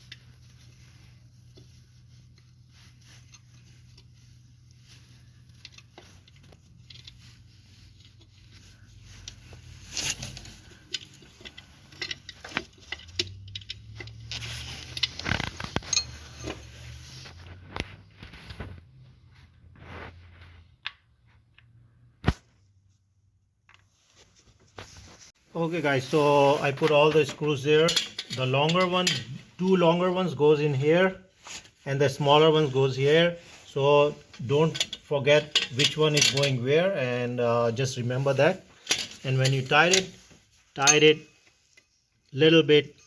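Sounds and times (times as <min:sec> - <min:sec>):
metal bolts clicking and clinking: 0:09.2 - 0:16.6, 0:27.1 - 0:29.7, 0:34.6 - 0:36.7, 0:38.8 - 0:40.2, 0:40.8 - 0:41.8.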